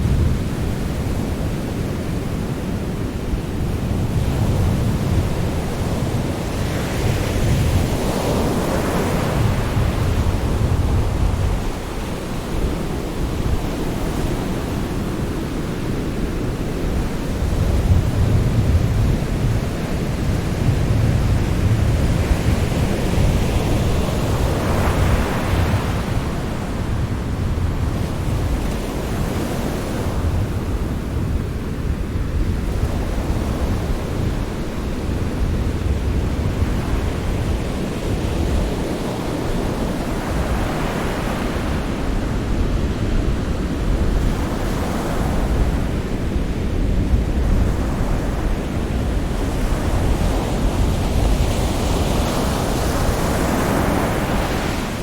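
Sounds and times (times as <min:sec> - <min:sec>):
sea surf washing on shore: 0:00.0 - 0:55.0.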